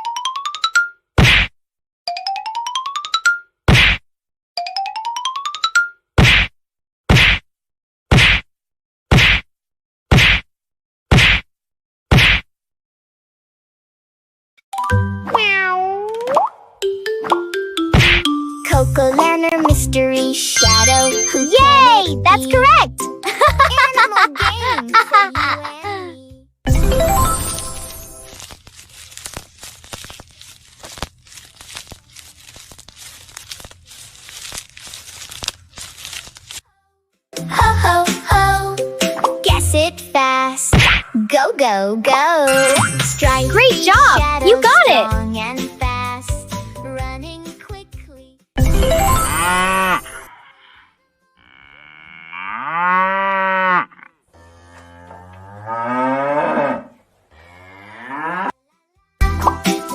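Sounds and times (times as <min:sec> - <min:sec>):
plastic crinkling: 0:27.5 - 0:36.7
cow mooing: 0:49.4 - 0:58.6.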